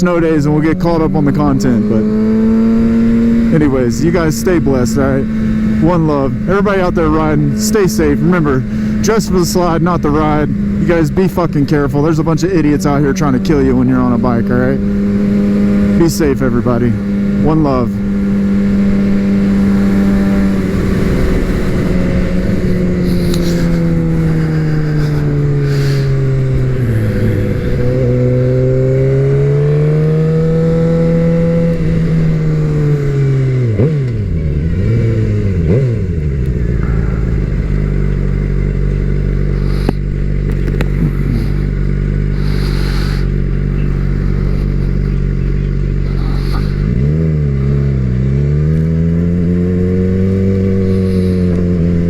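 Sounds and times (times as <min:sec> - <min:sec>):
motorcycle engine under way: 0:00.0 - 0:52.0
wind noise: 0:18.1 - 0:28.8.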